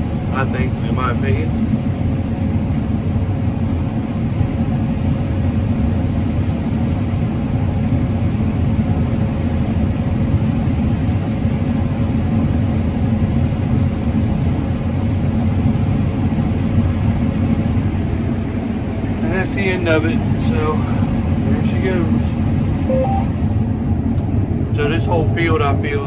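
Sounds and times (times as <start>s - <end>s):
combine harvester rumble: 15.3s - 26.0s
faint steady hum: 17.9s - 23.4s.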